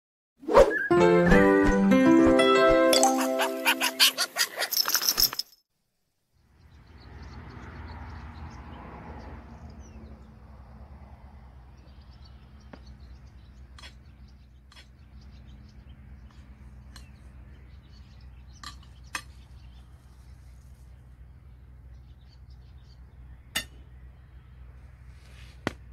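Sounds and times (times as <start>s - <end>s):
tinkling chime jingle: 2.5s - 5.6s.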